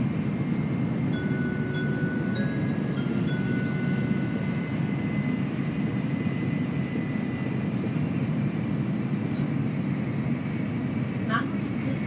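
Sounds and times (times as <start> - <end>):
faint high whine: 0.0 - 9.6
train interior low rumble: 0.0 - 12.0.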